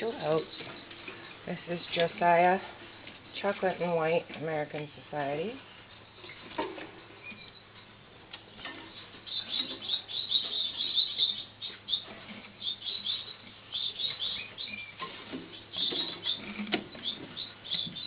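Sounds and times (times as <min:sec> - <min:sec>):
finches chirping: 0:08.9 - 0:18.0.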